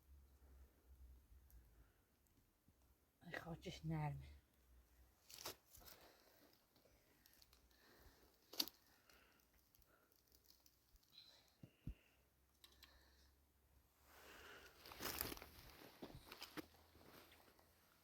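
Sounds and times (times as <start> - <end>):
scraping and rustling of soil: 5.2 - 6.6, 14.3 - 17.7.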